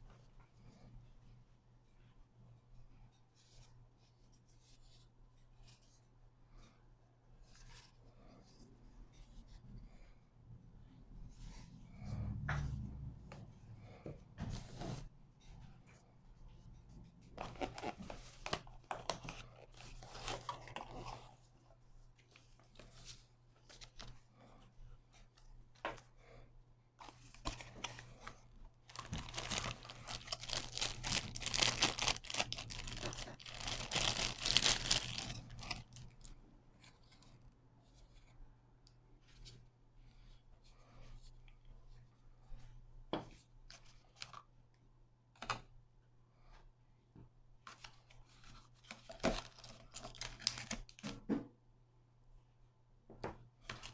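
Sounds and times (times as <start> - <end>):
packaging crinkling and tearing: 17.4 - 18.1, 28.9 - 36.3, 48.9 - 51.0.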